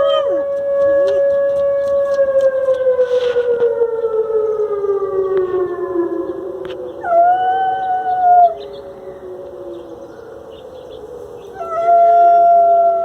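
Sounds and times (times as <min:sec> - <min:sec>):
dog howling: 0:00.0 - 0:01.2, 0:07.0 - 0:08.7, 0:11.4 - 0:13.0.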